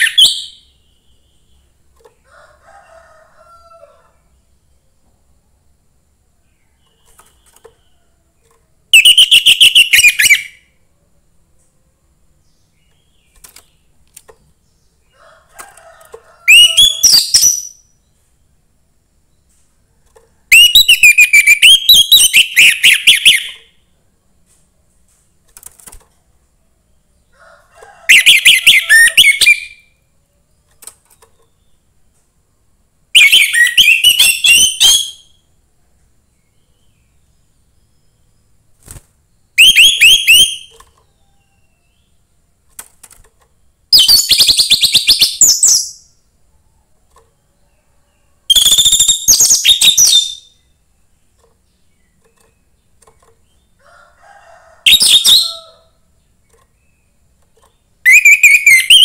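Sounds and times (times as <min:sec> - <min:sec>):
thrush singing whistled notes: 0:08.9 - 0:10.6, 0:20.5 - 0:23.6, 0:33.2 - 0:35.4, 0:39.6 - 0:40.8, 0:48.5 - 0:50.6, 0:54.9 - 0:55.6, 0:58.1 - 0:59.0.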